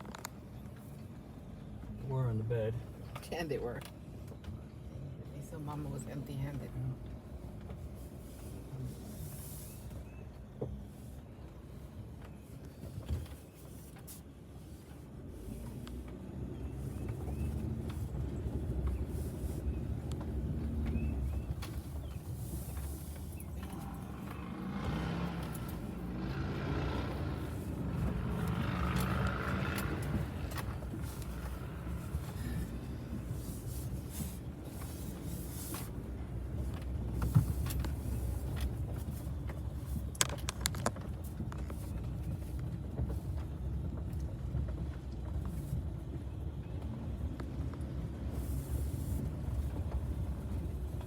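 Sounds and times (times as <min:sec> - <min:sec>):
camper van engine rumble: 0:00.0 - 0:51.0
sharp clicks and rattles: 0:19.9 - 0:33.3, 0:36.6 - 0:45.5.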